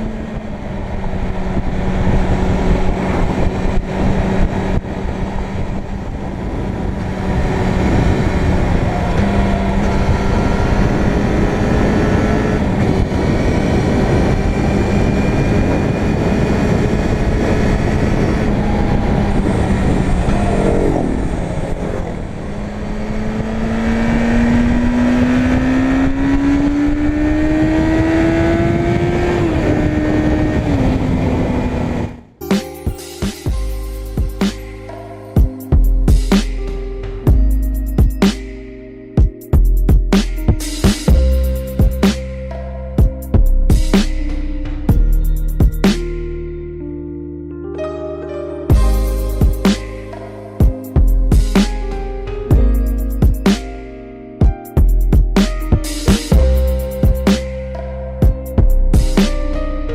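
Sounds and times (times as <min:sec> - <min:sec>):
motorcycle engine revving: 0:00.0 - 0:32.3
wind noise: 0:00.0 - 0:32.3.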